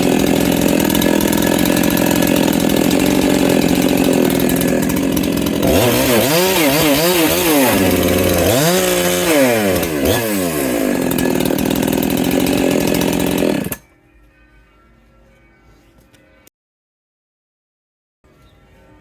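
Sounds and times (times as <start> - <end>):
chainsaw cutting wood: 0.0 - 13.8
faint background music: 13.8 - 16.5, 18.3 - 19.0.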